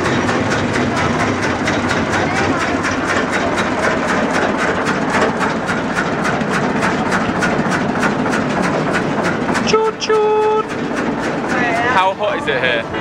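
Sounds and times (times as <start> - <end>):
train engine running: 0.0 - 13.0
wheels clattering on track: 0.0 - 13.0.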